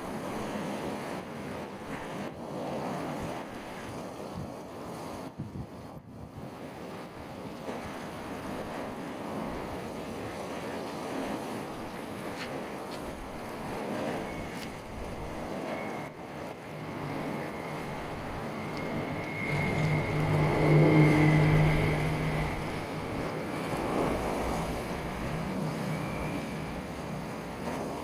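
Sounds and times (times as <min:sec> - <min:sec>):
waves: 0:00.0 - 0:28.0
wind: 0:00.0 - 0:28.0
boat engine running: 0:07.7 - 0:28.0.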